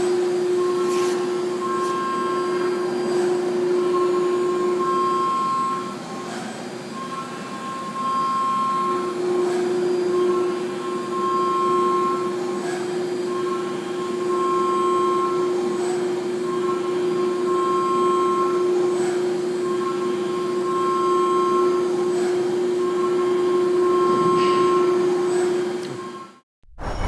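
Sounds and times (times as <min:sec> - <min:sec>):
milling machine humming: 0:00.0 - 0:27.0
high whining tones: 0:26.0 - 0:27.0.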